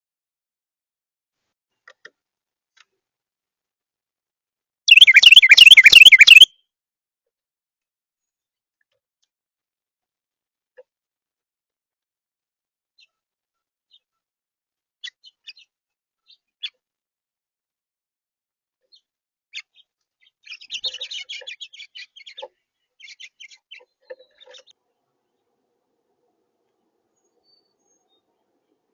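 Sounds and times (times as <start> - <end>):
songbird chirping: 4.9 - 6.5.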